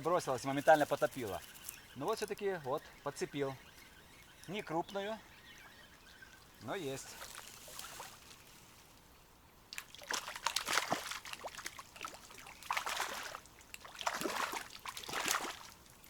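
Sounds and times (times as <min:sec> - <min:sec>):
fish splashing at water surface: 0:09.8 - 0:15.8.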